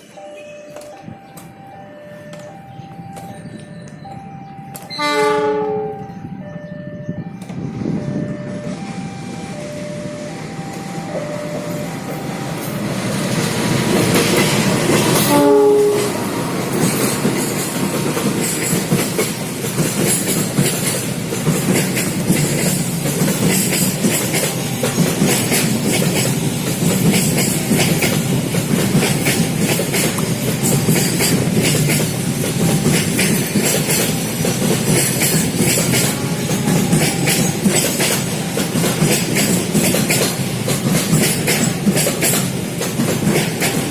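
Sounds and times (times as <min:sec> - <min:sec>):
train passing: 0:00.0 - 0:43.9
train horn blast: 0:04.9 - 0:06.1, 0:15.1 - 0:16.8, 0:35.9 - 0:37.5
wheels clattering over rail joints: 0:11.6 - 0:43.9.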